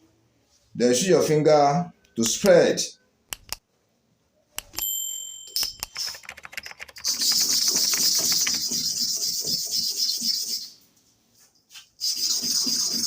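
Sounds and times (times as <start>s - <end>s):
short ringing tone: 4.8s - 6.2s.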